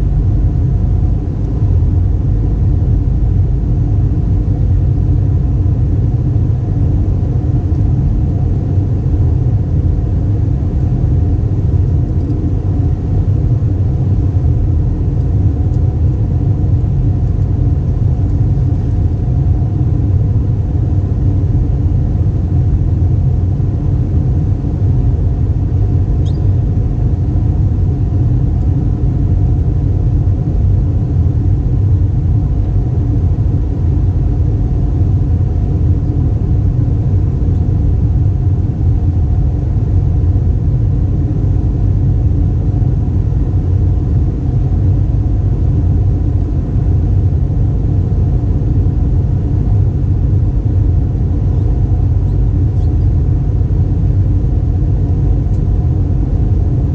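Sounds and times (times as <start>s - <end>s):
aircraft cabin engine rumble: 0.0s - 56.9s
steady hum tones: 0.0s - 56.9s.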